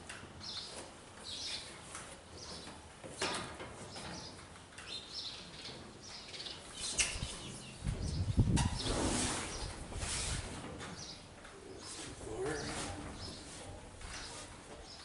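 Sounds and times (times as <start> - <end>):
birds chirping: 3.8 - 9.7.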